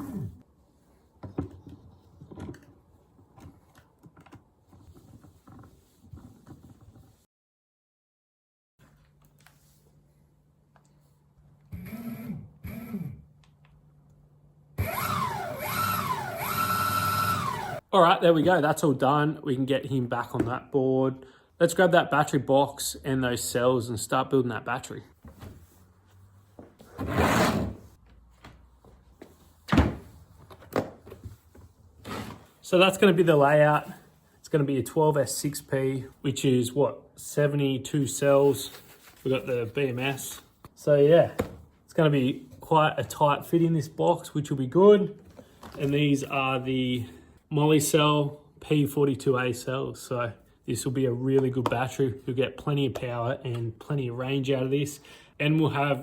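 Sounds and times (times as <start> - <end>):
sliding scrape on workbench: 26.9 - 28.0.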